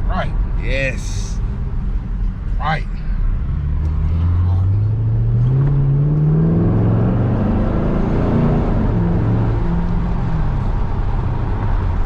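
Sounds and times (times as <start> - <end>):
car engine accelerating hard: 3.3 - 12.0.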